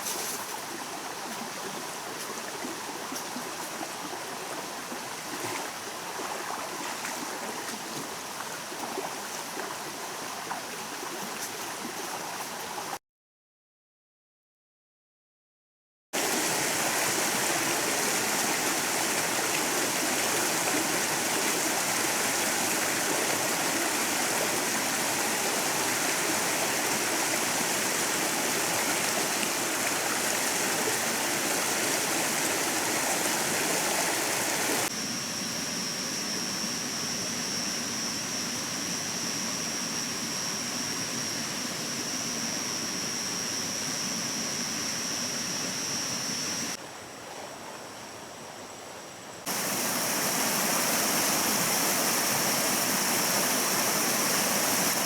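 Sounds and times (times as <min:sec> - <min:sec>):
stream rushing over rocks: 0:16.2 - 0:34.9, 0:49.5 - 0:55.0
steady high-pitched tone: 0:34.5 - 0:46.8.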